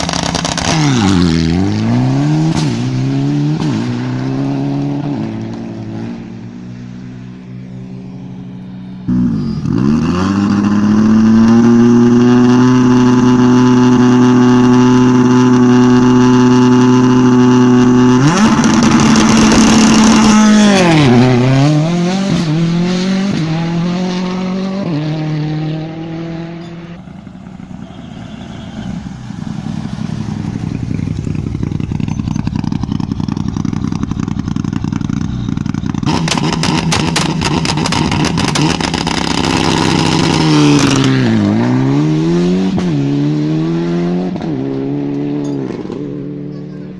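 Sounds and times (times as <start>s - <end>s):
rally car engine revving: 0.0s - 6.9s, 9.1s - 46.9s
rattling crackling noise: 18.4s - 22.6s.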